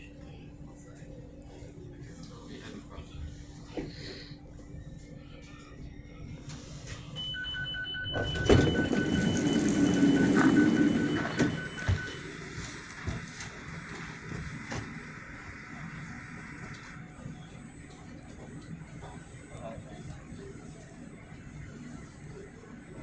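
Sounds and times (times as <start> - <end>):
rapid two-pitch door warning beeps: 6.5 - 23.0.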